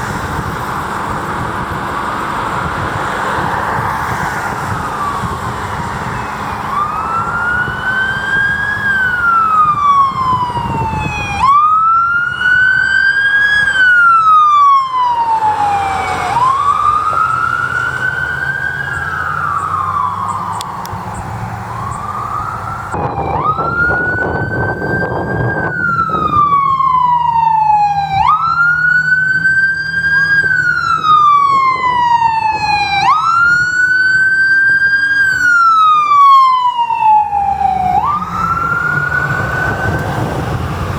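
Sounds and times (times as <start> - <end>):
emergency siren wailing: 0.0 - 40.9
low engine rumble: 0.0 - 40.9.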